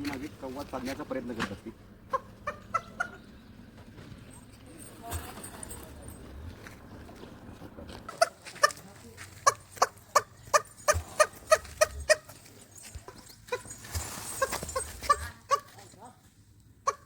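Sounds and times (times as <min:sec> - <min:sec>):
turkey clucking: 0:01.6 - 0:06.5, 0:08.0 - 0:16.0, 0:16.8 - 0:17.0.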